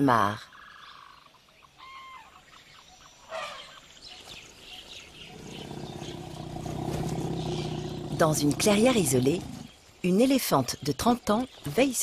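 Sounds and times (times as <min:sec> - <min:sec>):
birds calling and chirping: 0:00.2 - 0:12.0.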